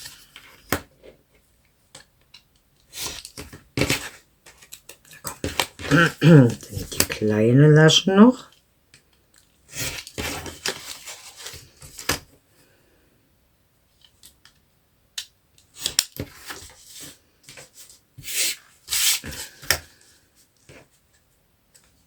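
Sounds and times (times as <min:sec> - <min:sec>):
paper rustling: 0:09.7 - 0:12.2.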